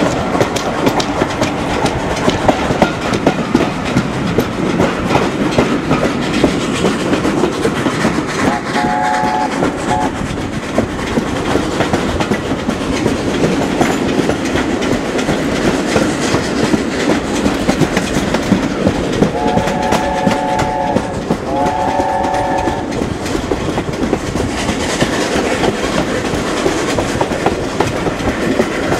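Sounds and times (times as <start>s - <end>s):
train wheels clickety-clack: 0.0s - 28.9s
train horn: 8.4s - 10.2s, 19.2s - 23.0s.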